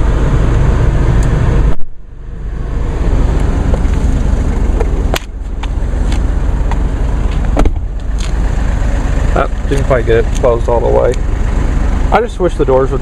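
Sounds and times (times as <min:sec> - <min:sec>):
diesel engine idling: 0:00.0 - 0:13.0
car door slamming: 0:06.1 - 0:08.3.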